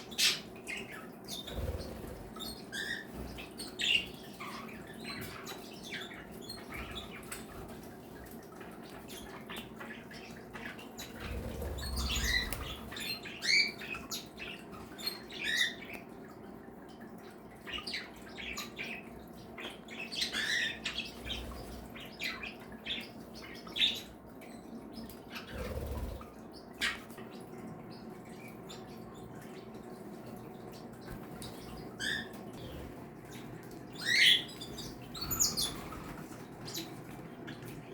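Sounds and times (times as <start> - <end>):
cage birds chirping and calling: 0.0 - 37.9
steady low hum: 27.5 - 37.9.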